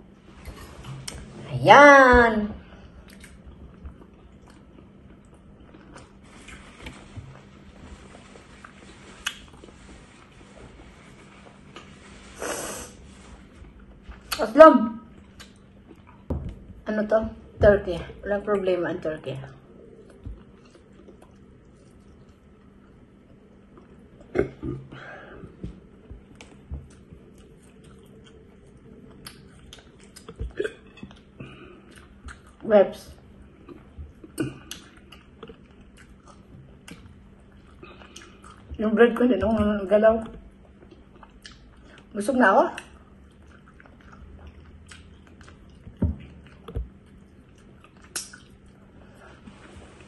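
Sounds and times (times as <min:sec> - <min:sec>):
person chewing: 0:03.0 - 0:14.4, 0:15.1 - 0:16.3, 0:19.7 - 0:24.8, 0:25.9 - 0:32.6, 0:33.4 - 0:38.8, 0:40.5 - 0:42.1, 0:42.8 - 0:50.0.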